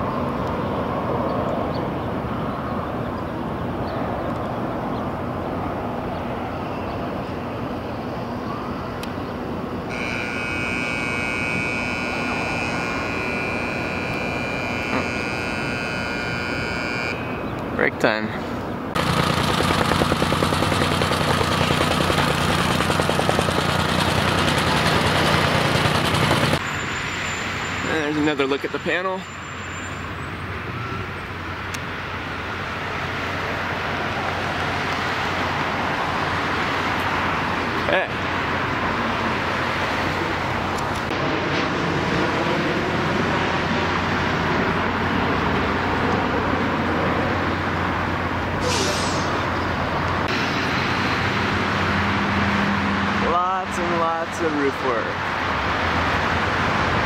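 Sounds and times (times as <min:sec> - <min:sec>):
road traffic passing: 0:00.0 - 0:57.0
engine running with pulsing rattle: 0:19.0 - 0:26.6
short sharp hiss: 0:48.6 - 0:49.4.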